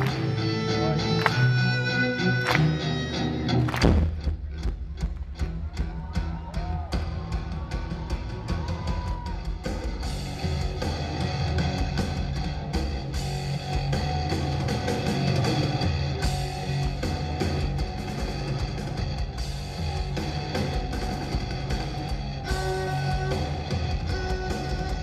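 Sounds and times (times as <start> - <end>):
distorted cellos heavy metal: 5.4 - 25.0.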